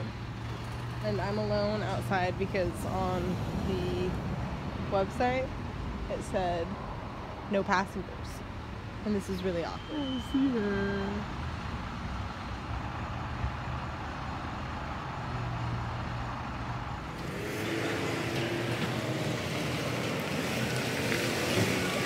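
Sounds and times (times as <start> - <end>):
vehicle engine running: 12.2 - 22.0.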